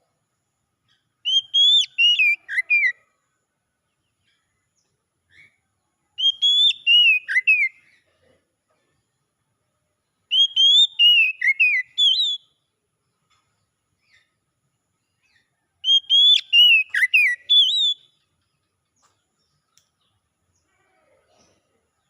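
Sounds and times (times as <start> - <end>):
bird whistling song: 1.2 - 3.0, 6.2 - 7.9, 10.2 - 12.7, 15.8 - 18.3.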